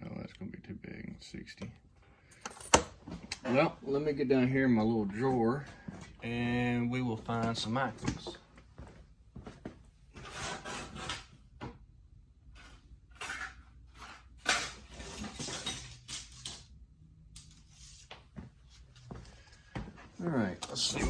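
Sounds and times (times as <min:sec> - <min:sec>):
metal parts clinking in a drawer: 0:12.6 - 0:16.7.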